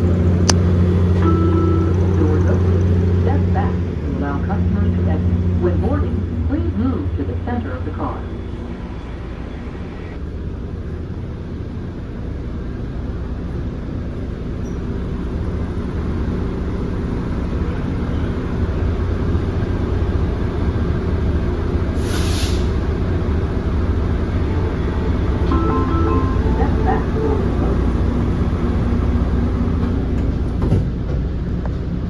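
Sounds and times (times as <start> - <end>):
train low rumble: 0.0 - 32.0
air hiss: 22.0 - 22.8.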